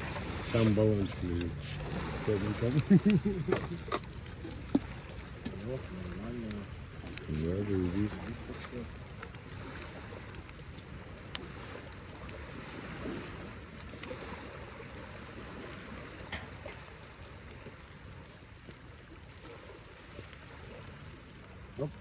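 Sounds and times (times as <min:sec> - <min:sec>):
water lapping: 0:00.0 - 0:22.0
wind: 0:00.0 - 0:22.0.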